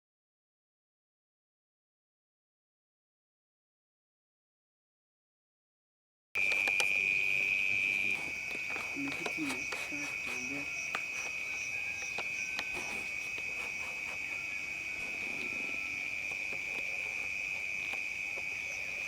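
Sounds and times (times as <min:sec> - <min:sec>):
crickets trilling: 0:06.4 - 0:19.0.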